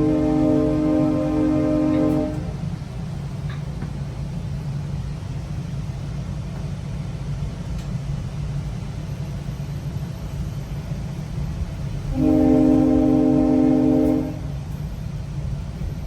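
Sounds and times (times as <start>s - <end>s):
train horn: 0.0s - 2.7s, 12.0s - 14.7s
train rumbling on track: 0.0s - 16.0s.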